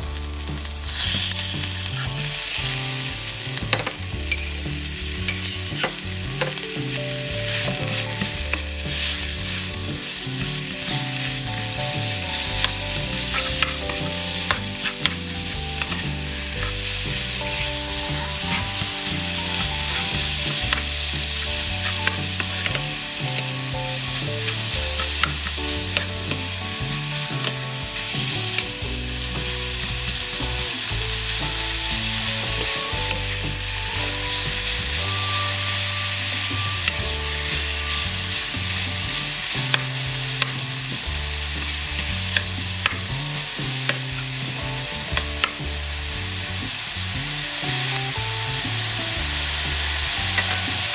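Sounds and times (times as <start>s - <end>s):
food sizzling in hot oil: 0.0s - 50.9s
spatula scraping a pan: 47.7s - 50.9s.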